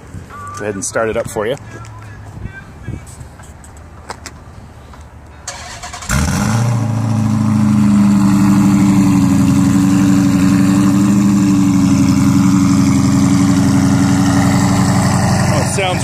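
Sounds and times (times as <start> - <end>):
car engine idling: 6.8 - 16.0.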